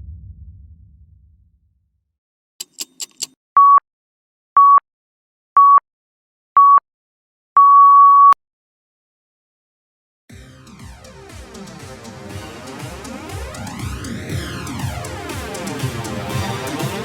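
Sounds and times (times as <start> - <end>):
quick clicks: 2.6 - 3.4
electronic countdown beeps: 3.6 - 3.8, 4.6 - 4.8, 5.6 - 5.8, 6.6 - 6.8, 7.6 - 8.4.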